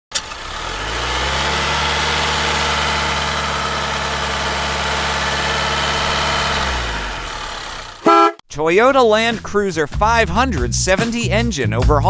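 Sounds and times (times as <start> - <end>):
car engine idling: 0.1 - 8.3.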